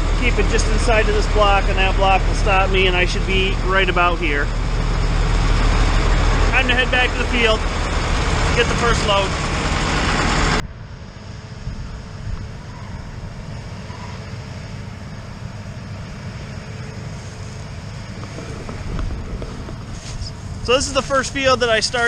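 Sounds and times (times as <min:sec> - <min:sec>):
loud engine sound: 0:00.0 - 0:22.0
low vehicle engine rumble: 0:00.0 - 0:22.0
wind on microphone: 0:18.0 - 0:20.7.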